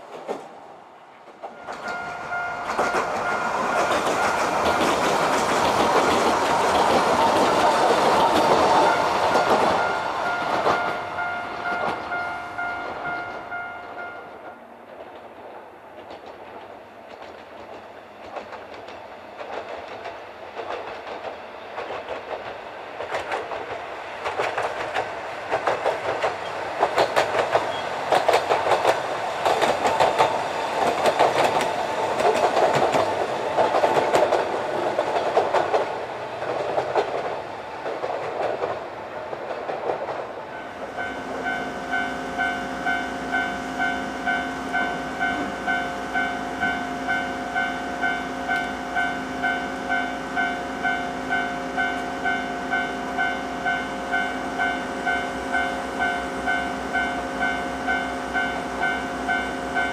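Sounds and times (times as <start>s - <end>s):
electric train passing: 0.0s - 59.9s
wheels clacking over rail joints: 1.2s - 59.9s
level-crossing warning bell: 1.5s - 5.4s, 6.2s - 14.6s, 40.5s - 59.9s.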